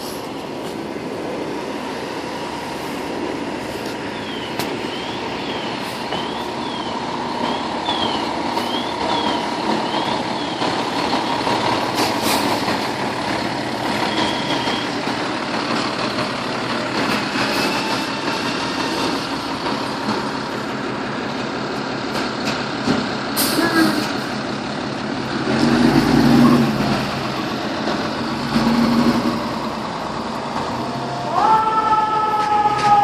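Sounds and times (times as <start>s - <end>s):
diesel engine running: 0.0s - 31.6s
street traffic noise: 0.0s - 33.0s
faint siren yelp: 31.0s - 33.0s.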